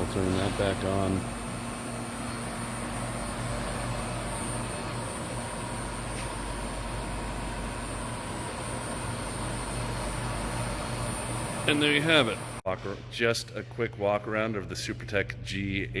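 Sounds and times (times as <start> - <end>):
grinder machine hum: 0.0 - 12.6
faint machine whine: 0.0 - 16.0.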